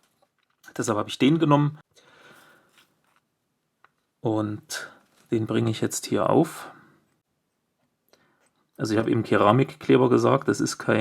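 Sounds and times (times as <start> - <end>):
faint soft rustle: 2.2 - 3.3, 4.8 - 5.7.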